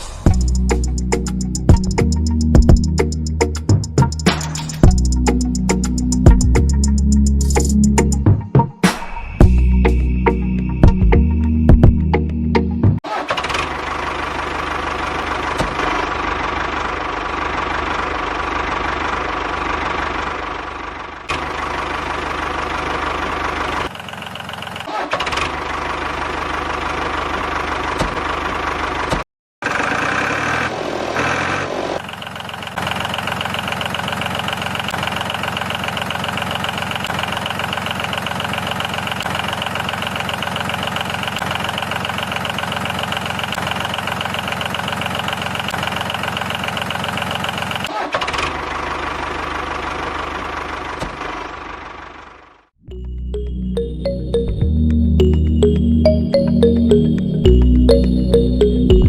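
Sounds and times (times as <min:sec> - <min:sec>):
small diesel engine idling: 0:13.2 - 0:52.8.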